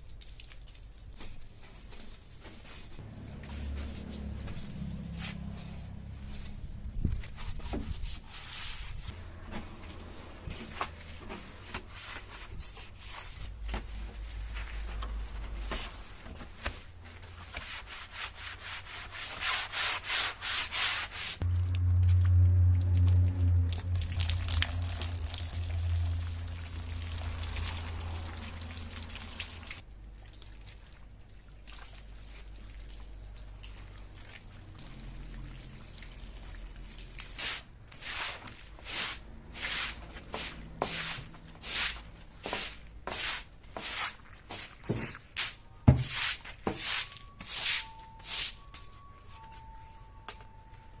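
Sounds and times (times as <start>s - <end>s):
brush scrubbing in soapy foam: 7.2s - 9.2s, 17.4s - 21.4s, 37.2s - 48.5s
low hum: 21.4s - 29.8s.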